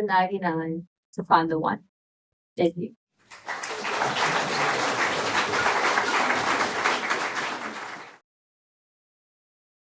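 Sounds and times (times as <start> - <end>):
audience applauding: 3.3 - 8.2.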